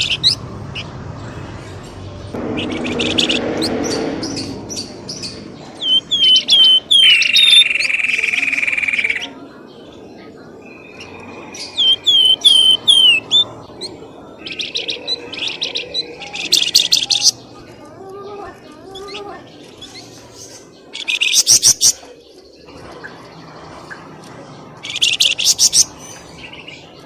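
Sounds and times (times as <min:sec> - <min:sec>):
rapid bird chirping: 0:02.4 - 0:09.4, 0:10.6 - 0:17.8, 0:18.5 - 0:27.0
whistled bird calls: 0:02.5 - 0:09.4, 0:10.7 - 0:17.4.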